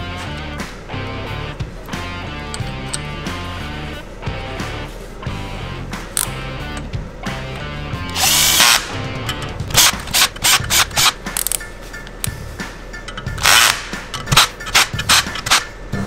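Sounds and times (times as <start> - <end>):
background music: 0.0 - 16.0
sharp mechanical clicks: 8.0 - 12.4, 13.2 - 15.7
power tool running: 8.1 - 11.2, 13.4 - 15.6.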